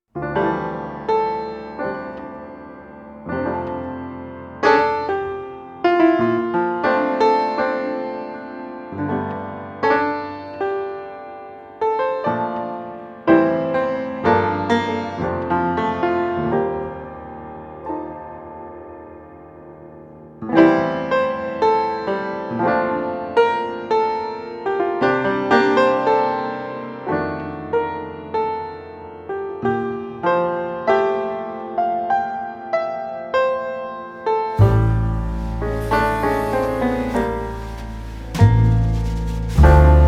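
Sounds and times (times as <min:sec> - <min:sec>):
slow piano music: 0:00.2 - 0:23.6, 0:26.2 - 0:40.0.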